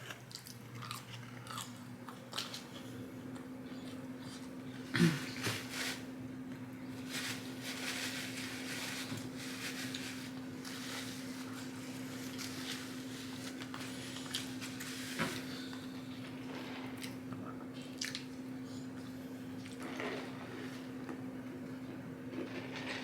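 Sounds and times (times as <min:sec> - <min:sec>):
chewing: 0:00.0 - 0:04.5, 0:16.9 - 0:18.4
steady low hum: 0:00.0 - 0:23.0.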